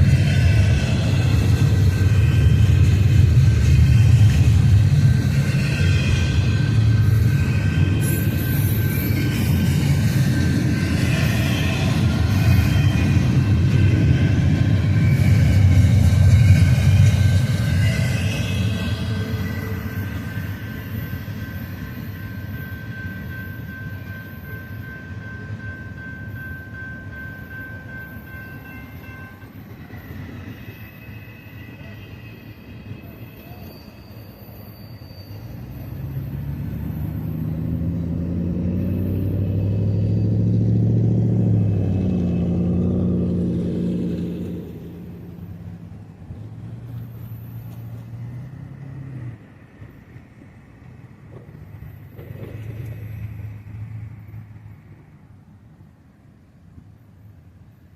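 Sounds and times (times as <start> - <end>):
freight train rumbling past: 0.0 - 57.9.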